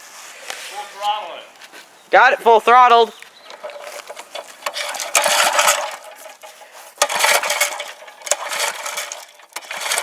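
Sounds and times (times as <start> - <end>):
engine recoil starter pulls: 3.4 - 10.0.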